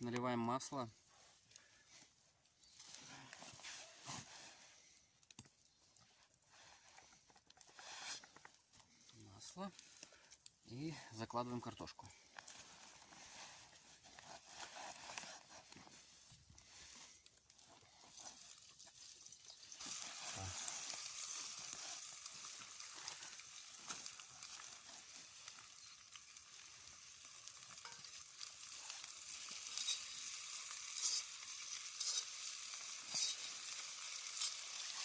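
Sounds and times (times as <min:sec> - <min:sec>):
potato frying in hot oil: 0:18.2 - 0:35.0.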